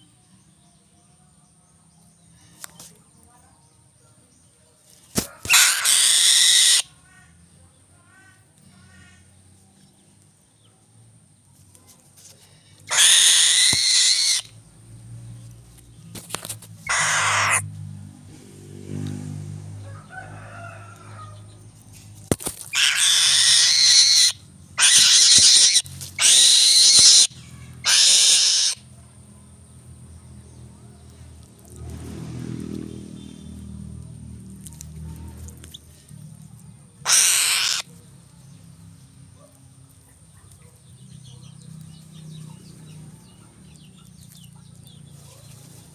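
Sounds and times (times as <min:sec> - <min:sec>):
eagle calling harshly: 0:05.4 - 0:06.9, 0:12.9 - 0:14.5, 0:16.8 - 0:17.6, 0:22.7 - 0:28.9, 0:37.0 - 0:37.9.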